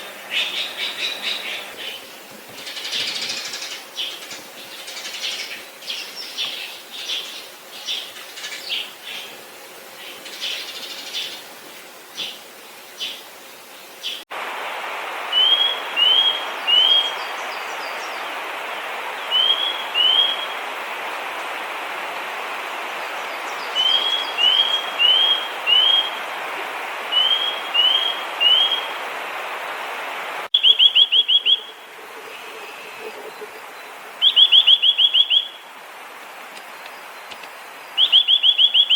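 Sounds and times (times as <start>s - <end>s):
steady background hiss: 0.0s - 38.9s
bird whistling notes: 30.5s - 31.8s, 34.2s - 35.6s.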